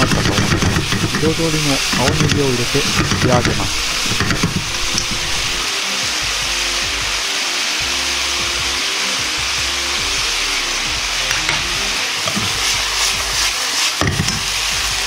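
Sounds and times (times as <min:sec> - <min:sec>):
chopsticks scraping a pan: 0:00.0 - 0:05.6, 0:12.2 - 0:14.5
pork sizzling in a wok: 0:00.0 - 0:15.0
soft background music: 0:00.2 - 0:15.0.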